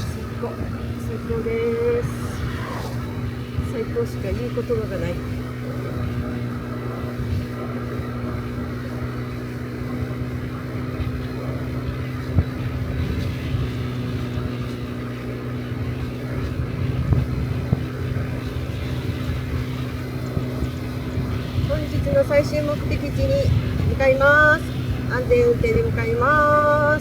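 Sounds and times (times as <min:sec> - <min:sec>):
scooter engine cruising: 0:00.0 - 0:27.0
wind rumbling on microphone: 0:00.0 - 0:27.0.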